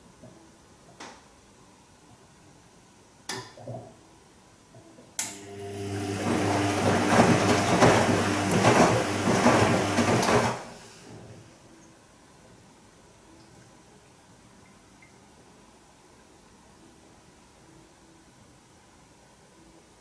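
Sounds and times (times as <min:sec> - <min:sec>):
washing machine drum motor hum: 0:05.3 - 0:11.3
water and laundry swishing: 0:05.4 - 0:11.4.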